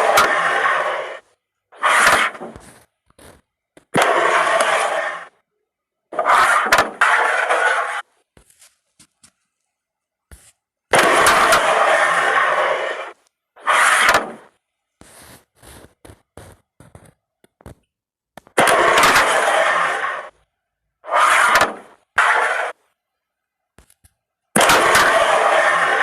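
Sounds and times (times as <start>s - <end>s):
pieces sliding across board: 0.0s - 5.4s, 6.1s - 9.4s, 10.3s - 17.8s, 18.6s - 20.4s, 21.0s - 23.0s.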